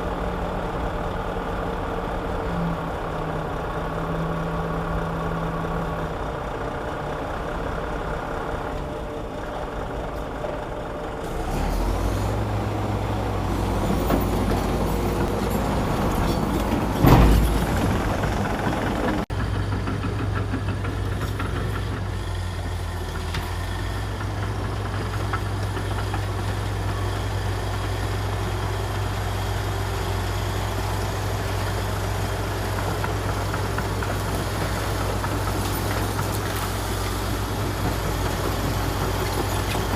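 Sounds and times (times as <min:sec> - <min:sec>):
heavy diesel engine running: 0:00.0 - 0:39.9
loud thump: 0:17.0 - 0:18.1.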